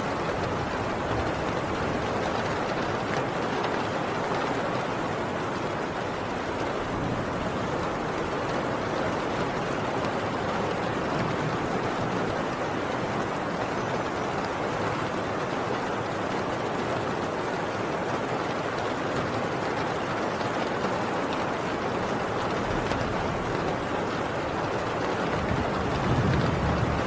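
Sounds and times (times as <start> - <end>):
heavy rain on a tin roof: 0.0 - 27.0.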